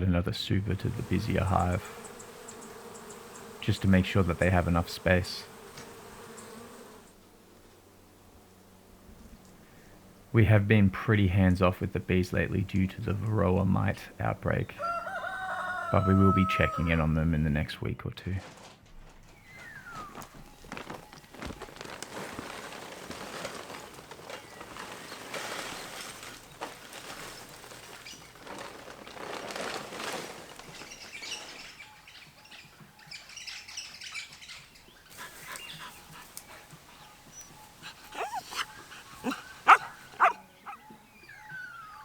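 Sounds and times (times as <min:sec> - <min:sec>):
rustling noise: 0:18.4 - 0:31.9
dog barking: 0:38.1 - 0:40.8.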